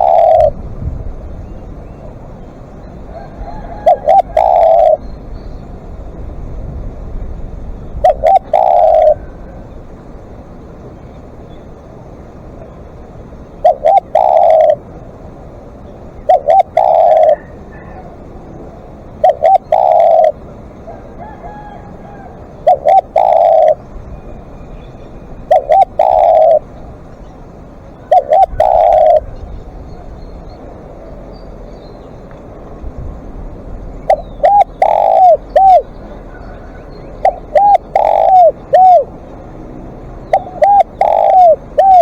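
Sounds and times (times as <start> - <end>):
dove cooing: 0.0 - 0.7, 3.1 - 5.0, 7.9 - 9.6, 13.6 - 14.9, 16.2 - 18.3, 19.1 - 23.9, 25.4 - 26.8, 27.8 - 30.2, 34.0 - 39.2, 40.2 - 42.0.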